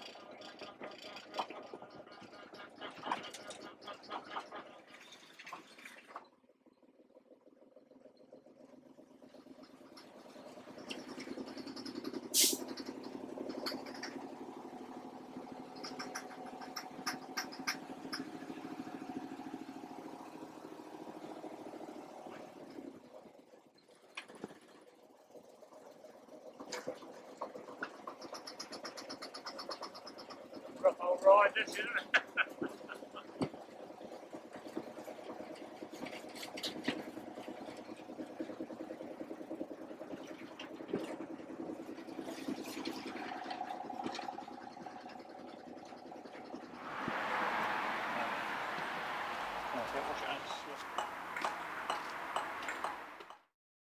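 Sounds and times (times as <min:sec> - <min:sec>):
engine idling: 0:07.0 - 0:22.8, 0:35.1 - 0:53.4.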